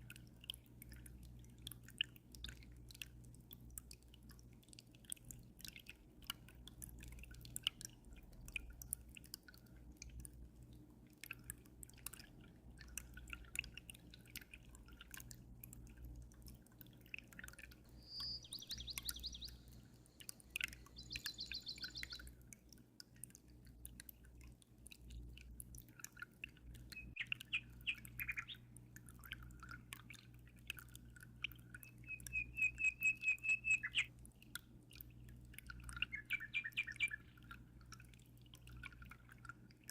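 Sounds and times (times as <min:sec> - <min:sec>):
water trickling and dripping: 0:00.0 - 0:39.9
small birds chirping: 0:17.9 - 0:22.4, 0:26.9 - 0:28.8, 0:31.8 - 0:34.1, 0:35.8 - 0:37.4.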